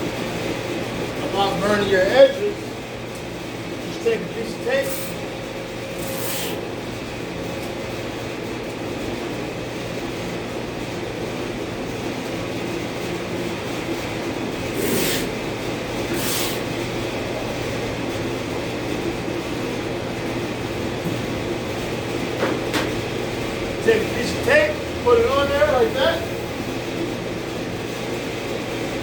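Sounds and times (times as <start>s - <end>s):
shop equipment hum: 0.0s - 29.0s
short hisses: 4.8s - 5.2s, 6.0s - 6.6s, 14.7s - 15.4s, 16.1s - 16.7s.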